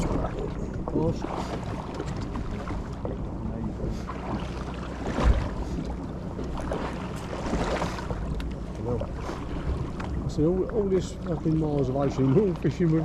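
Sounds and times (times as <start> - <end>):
boat engine running: 0.0 - 13.0
low thump: 5.2 - 5.6.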